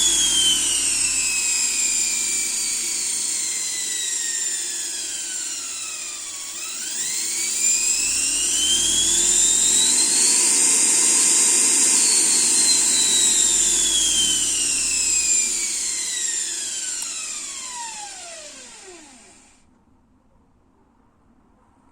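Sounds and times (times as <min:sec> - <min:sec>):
electric motor whine: 0:00.0 - 0:19.6.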